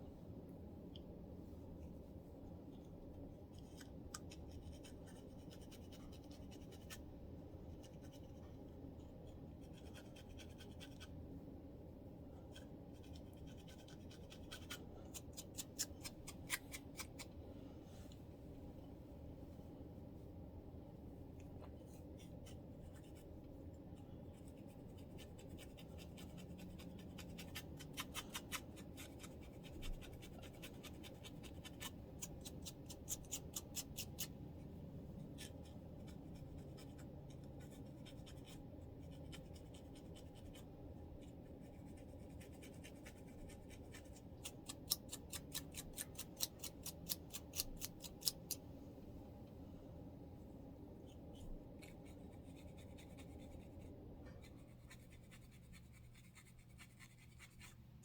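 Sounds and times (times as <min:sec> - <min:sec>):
faint steady background hum: 0:00.0 - 0:58.0
fine scratching on scalp: 0:51.1 - 0:57.8.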